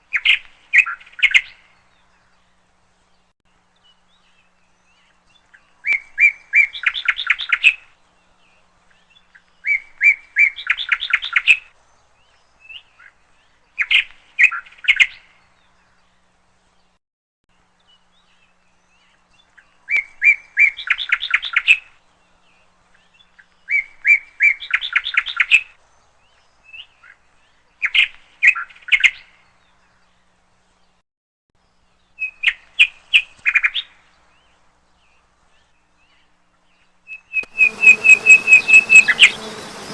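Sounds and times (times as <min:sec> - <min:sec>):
songbird chirping: 0:37.4 - 0:39.9.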